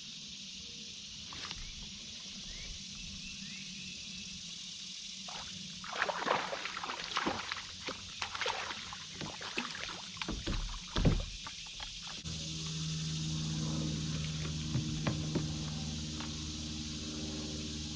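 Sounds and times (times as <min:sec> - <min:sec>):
paddle splashes and drips: 0:05.3 - 0:12.2.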